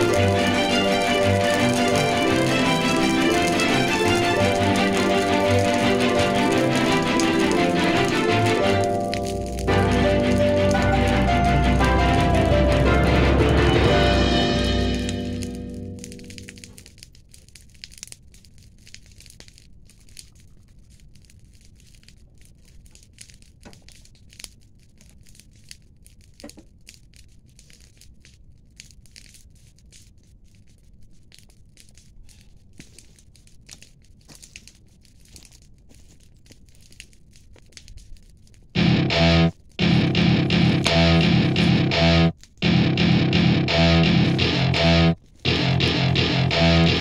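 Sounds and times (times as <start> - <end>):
soft crackling and rustling: 16.1 - 38.8.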